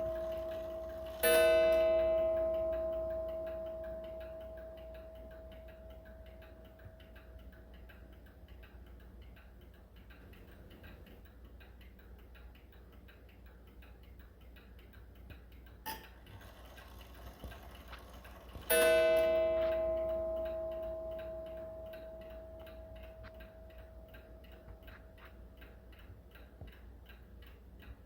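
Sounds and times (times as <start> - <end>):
clock strike ringing: 0.0 - 6.6, 15.9 - 25.0
clock ticking: 0.0 - 28.0.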